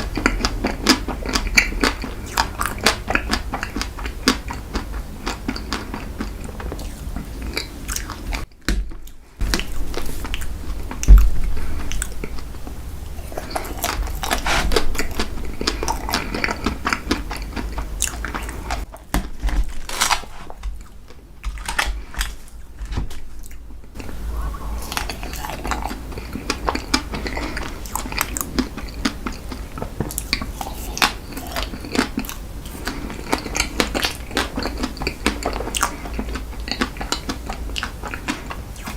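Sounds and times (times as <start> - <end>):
chewing crunchy ice cream cake: 0.0 - 38.9.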